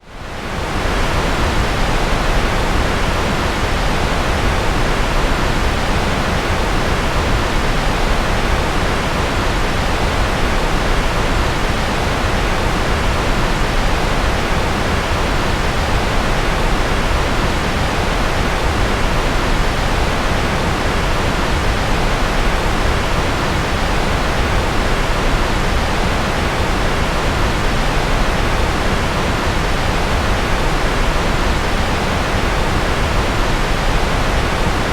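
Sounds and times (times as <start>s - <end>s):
steady rushing noise: 0.0s - 34.9s.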